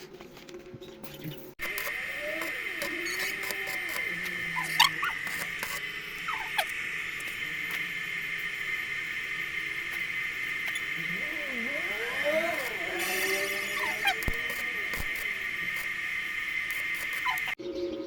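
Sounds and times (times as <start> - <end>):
high-pitched drone: 1.6 - 18.0
birds chirping and calling: 16.8 - 18.0.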